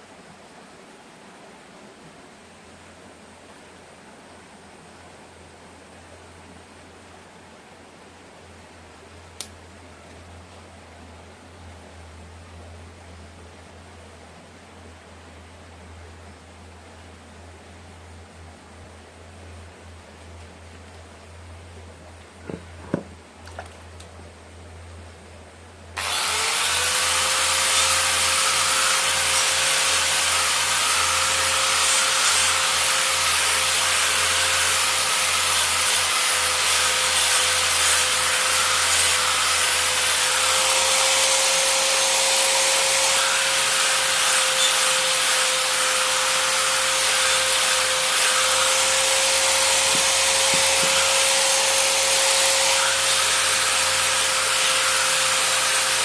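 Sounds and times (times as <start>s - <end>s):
loud grinding hiss: 26.0s - 56.0s
power tool motor whining: 26.0s - 56.0s.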